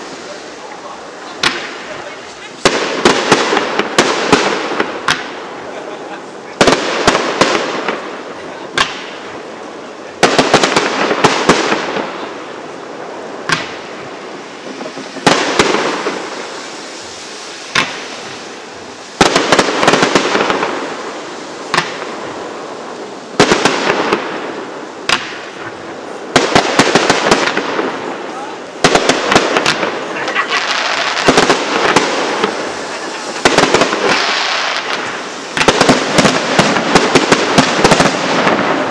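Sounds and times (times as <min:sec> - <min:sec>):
firework crackle: 0:00.0 - 0:38.9
firework shells bursting: 0:13.4 - 0:21.0, 0:21.6 - 0:22.4, 0:28.8 - 0:38.9.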